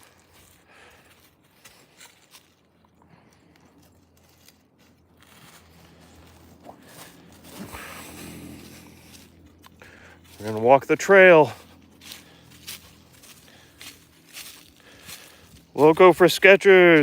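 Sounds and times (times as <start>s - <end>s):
footsteps crunching on trail: 0.0s - 17.0s.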